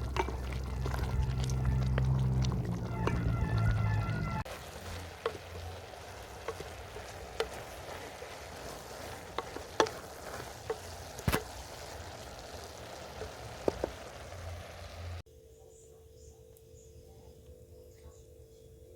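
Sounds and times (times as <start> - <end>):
food sizzling in a pot: 0.0 - 3.6, 4.4 - 15.2.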